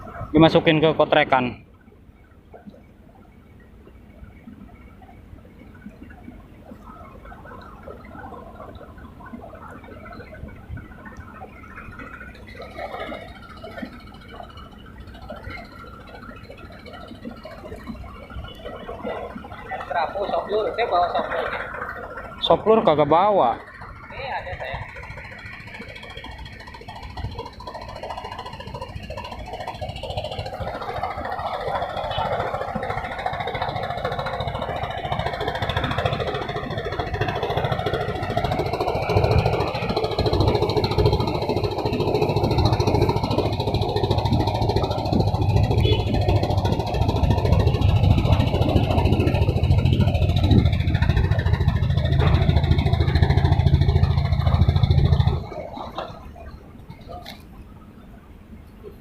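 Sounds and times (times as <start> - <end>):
engine humming: 0.0 - 59.0.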